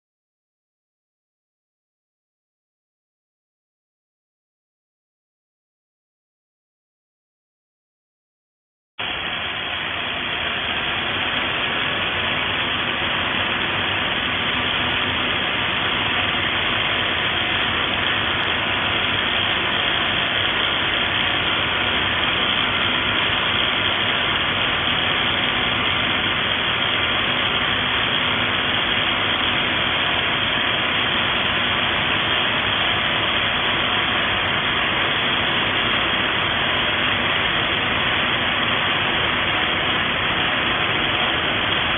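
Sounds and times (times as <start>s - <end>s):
rotary hammer running: 9.0s - 41.9s.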